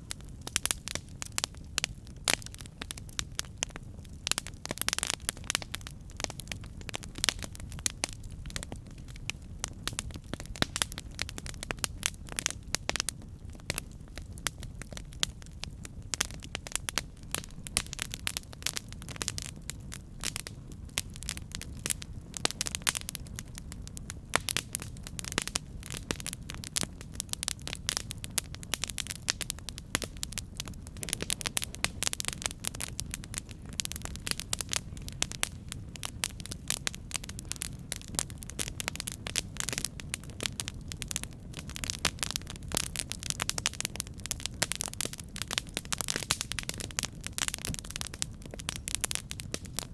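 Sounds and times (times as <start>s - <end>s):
campfire crackling and popping: 0.0s - 49.9s
low rush of flame: 0.0s - 49.9s.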